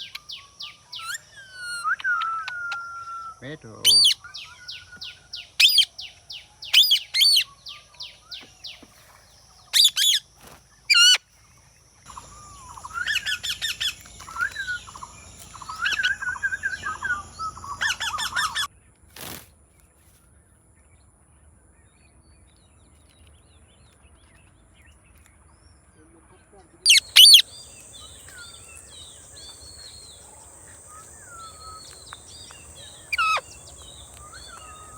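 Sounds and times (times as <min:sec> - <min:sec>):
parakeet screeching and chattering: 0:26.9 - 0:34.9.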